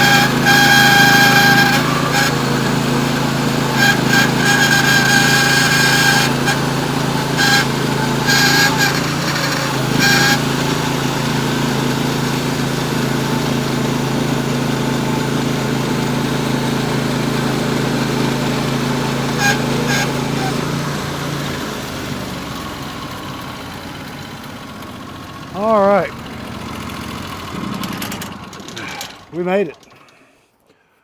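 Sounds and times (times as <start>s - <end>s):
short high squeaks: 0.0s - 10.9s, 19.3s - 20.9s
band sawmill cutting log: 0.0s - 30.0s.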